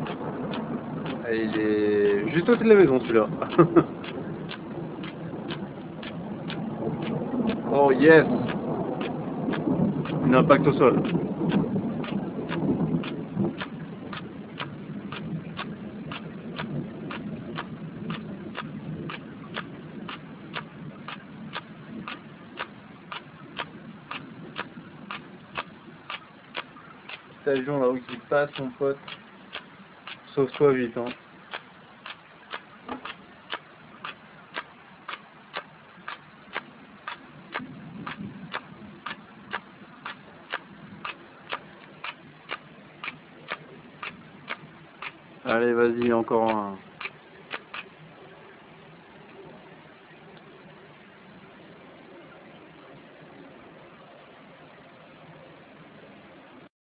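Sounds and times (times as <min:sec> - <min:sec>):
regular sharp ticking: 0:00.0 - 0:51.5
thunder rumbling: 0:00.0 - 0:56.7.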